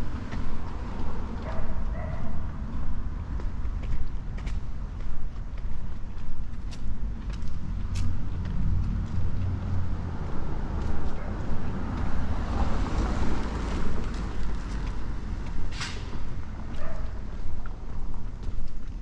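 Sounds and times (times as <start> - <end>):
passing car engine rumble: 6.9 - 16.7.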